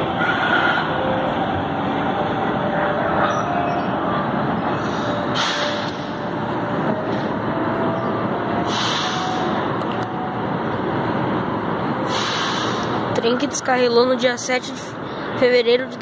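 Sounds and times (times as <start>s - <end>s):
electric train rumbling: 0.0s - 16.0s
short hisses: 8.7s - 9.4s, 12.1s - 12.9s.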